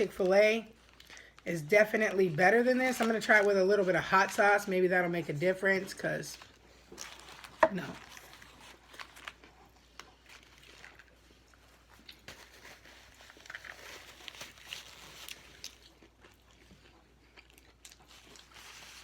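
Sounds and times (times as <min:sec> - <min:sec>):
paper wrapper crinkling: 0:00.0 - 0:16.2, 0:17.7 - 0:19.0
crunching and chewing food: 0:00.0 - 0:19.0.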